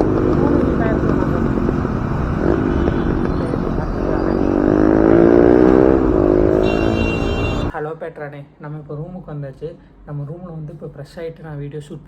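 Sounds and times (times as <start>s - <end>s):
wind rushing over microphone: 0.0s - 6.6s
motorcycle engine running: 0.0s - 7.8s.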